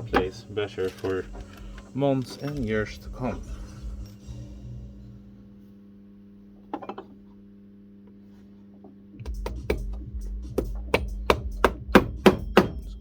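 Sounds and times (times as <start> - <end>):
hammer tapping nails: 10.6 - 13.0.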